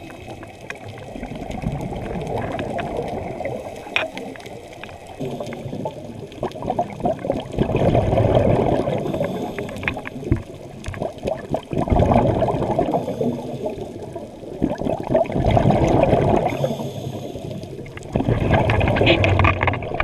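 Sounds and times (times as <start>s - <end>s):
muffled underwater air bubbling: 0.0s - 20.0s.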